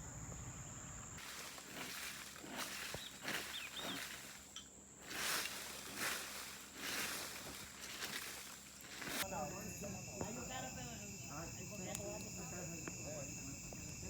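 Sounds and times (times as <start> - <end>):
insect trill: 0.0 - 14.0
bird chirps: 2.8 - 4.2.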